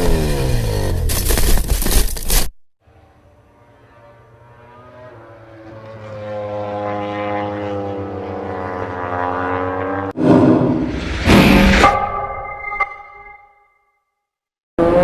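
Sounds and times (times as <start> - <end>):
racing motorcycle engine: 0.0 - 1.1, 2.8 - 11.0, 14.8 - 15.0.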